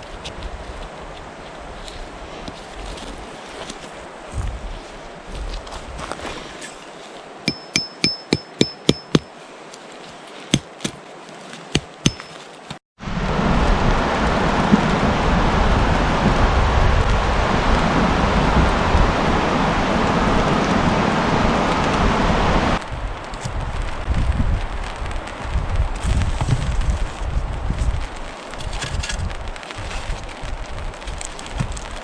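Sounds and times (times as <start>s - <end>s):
sharp strikes with ringing note: 7.5s - 9.3s, 12.0s - 12.4s
steady rushing noise: 13.0s - 32.0s.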